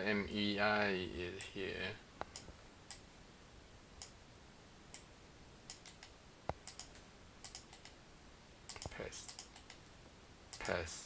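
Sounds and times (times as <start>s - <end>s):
keyboard and mouse clicks: 2.2s - 3.0s, 5.7s - 8.0s, 8.7s - 9.9s, 10.5s - 10.8s.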